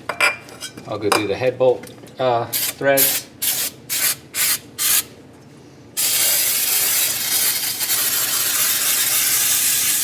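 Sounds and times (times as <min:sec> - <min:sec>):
steady spray hiss: 0:06.0 - 0:10.0.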